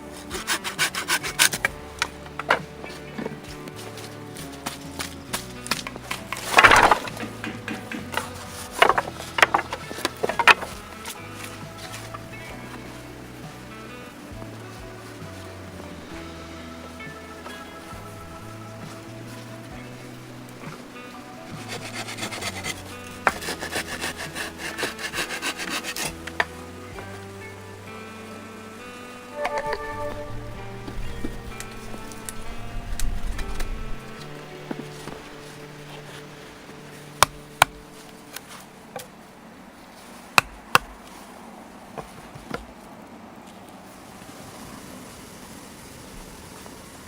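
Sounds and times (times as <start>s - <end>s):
hand saw cutting wood: 0.0s - 2.2s, 21.5s - 26.6s
hand tool striking wood: 5.7s - 10.8s, 21.5s - 26.2s.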